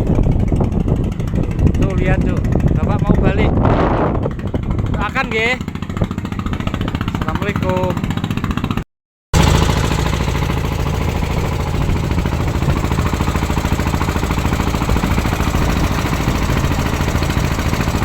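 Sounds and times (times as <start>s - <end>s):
small boat engine running: 0.0s - 18.0s.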